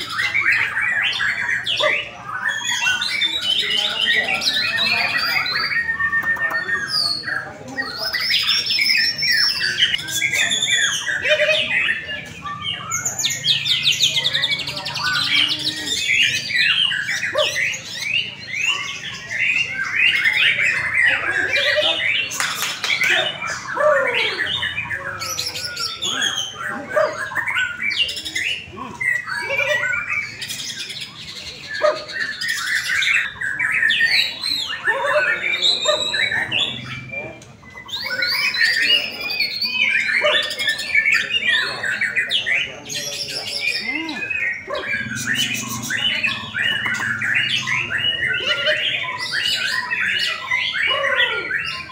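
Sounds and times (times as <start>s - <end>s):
birds singing whistled phrases: 0.0s - 51.9s.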